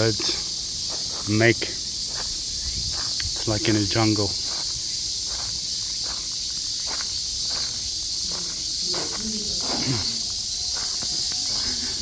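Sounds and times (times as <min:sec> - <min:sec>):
cicadas droning: 0:00.0 - 0:12.0.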